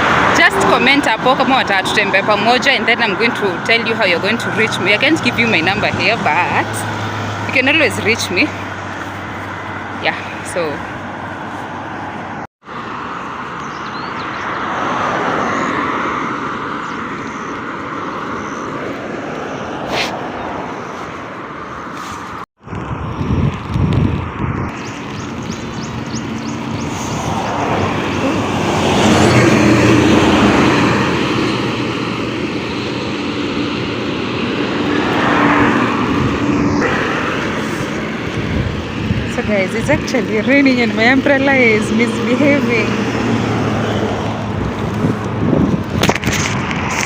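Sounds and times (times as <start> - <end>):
vehicle engine passing by: 0.0 - 21.2, 24.3 - 47.0
road traffic: 0.0 - 47.0
wind noise on microphone: 19.0 - 47.0.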